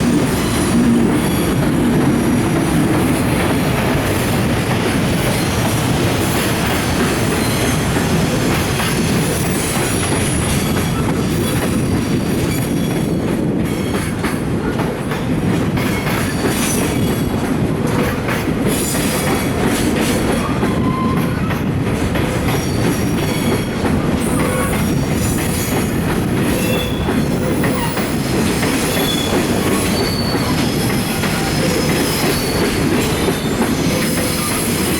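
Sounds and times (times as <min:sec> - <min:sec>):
freight train rumble: 0:00.0 - 0:34.9
train wheels clicking over rail joints: 0:00.0 - 0:34.9
high-pitched wheel squeals: 0:29.0 - 0:34.8.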